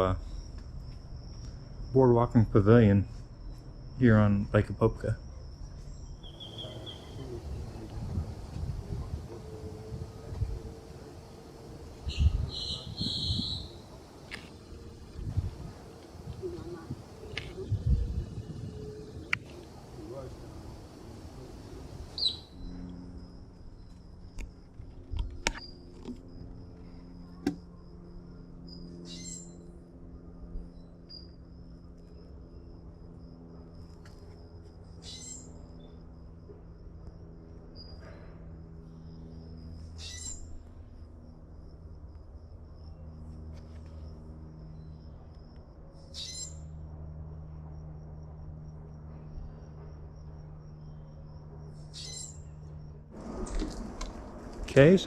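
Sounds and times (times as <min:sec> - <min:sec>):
low steady hum: 0:00.0 - 0:55.0
insect trilling: 0:05.5 - 0:24.1, 0:27.8 - 0:29.7, 0:35.0 - 0:36.0, 0:39.4 - 0:42.0, 0:44.6 - 0:46.8, 0:50.6 - 0:55.0
chirping burst: 0:06.2 - 0:08.5, 0:09.4 - 0:14.9, 0:15.7 - 0:22.8
brief raspy call: 0:12.1 - 0:13.8.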